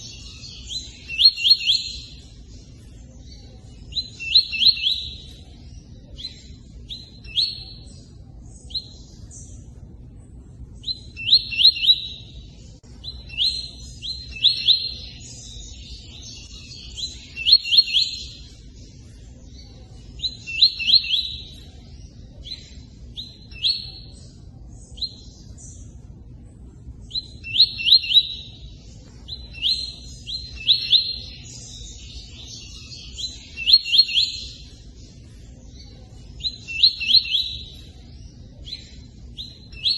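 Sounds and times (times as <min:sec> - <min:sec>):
bird chirping in bursts: 0:00.0 - 0:39.9.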